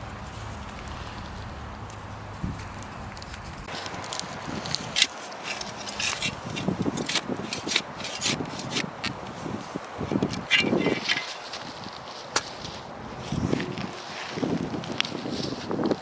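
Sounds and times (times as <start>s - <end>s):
hand tool scraping soil: 3.7s - 16.0s.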